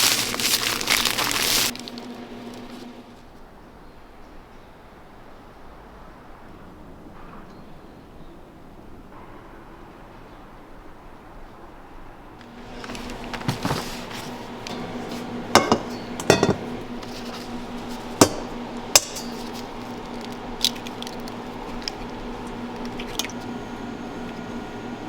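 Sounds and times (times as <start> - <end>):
steady low hum: 12.4 - 25.0
hard objects clinking: 12.8 - 23.0.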